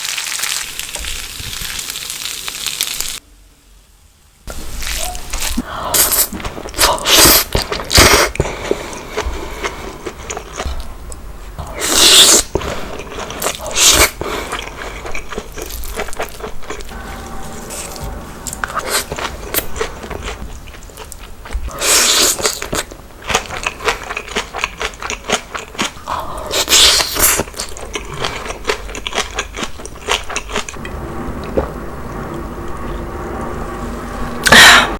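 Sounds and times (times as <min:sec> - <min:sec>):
chewing and biting: 0:04.6 - 0:10.9, 0:11.8 - 0:16.9, 0:18.8 - 0:30.8.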